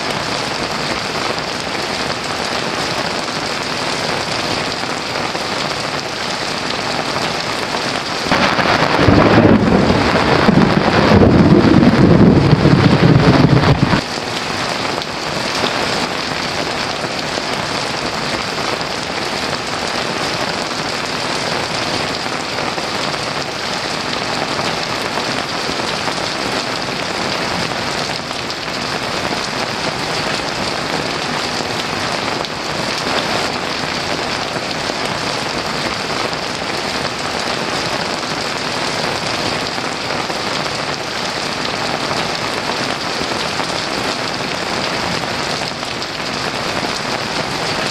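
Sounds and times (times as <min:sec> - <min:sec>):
heavy rain pouring: 0:00.0 - 0:47.9
low thunder rumble: 0:08.2 - 0:14.2.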